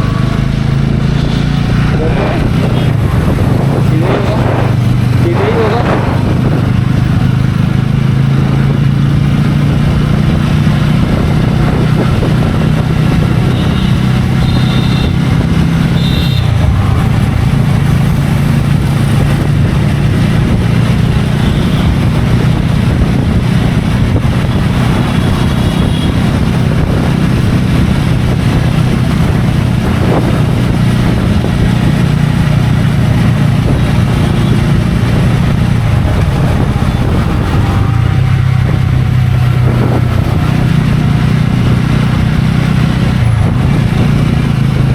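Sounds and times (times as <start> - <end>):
motorcycle engine running: 0.0 - 44.9
wind noise on microphone: 0.0 - 44.9.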